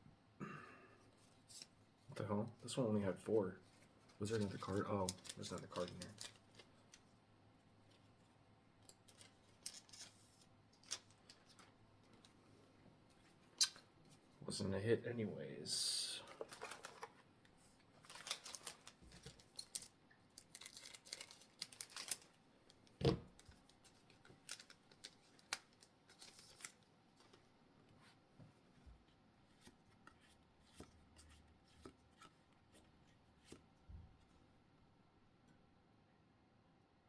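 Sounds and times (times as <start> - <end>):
wrappers and cards crinkling: 3.7 - 7.0, 8.9 - 12.4, 16.2 - 22.4, 23.3 - 27.4.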